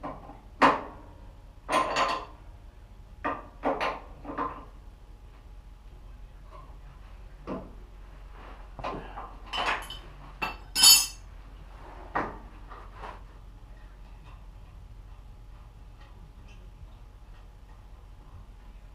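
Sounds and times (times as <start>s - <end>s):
metal tools clinking and knocking: 9.5s - 11.2s.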